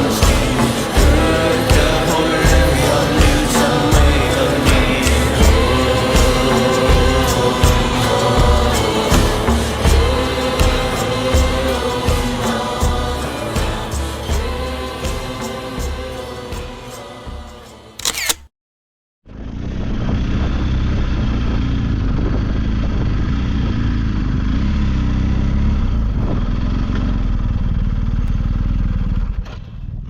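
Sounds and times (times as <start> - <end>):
motorcycle engine running: 0.0 - 15.9, 19.3 - 30.0
choral music: 0.0 - 18.3
wind noise: 19.6 - 24.0.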